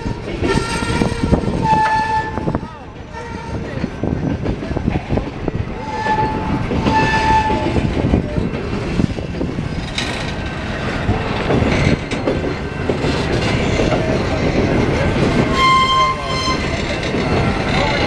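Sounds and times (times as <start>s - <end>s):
freight train wheels rumbling: 0.0s - 18.0s
wheels squealing: 13.0s - 18.0s.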